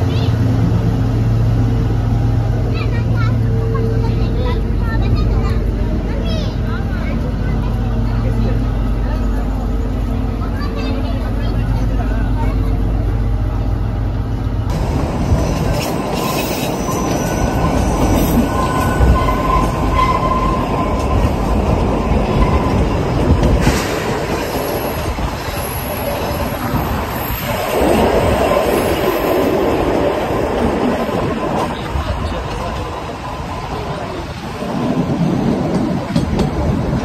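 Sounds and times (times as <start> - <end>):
train wheels rumbling on rails: 0.0 - 37.0
thin wheel squeals: 16.1 - 20.8.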